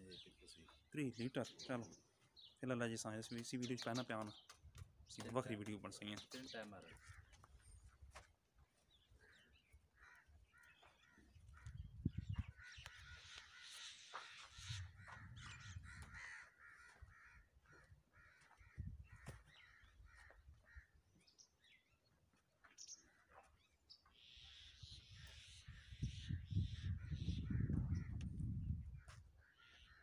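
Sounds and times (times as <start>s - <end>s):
faint harsh bird calls: 29.0s - 30.0s.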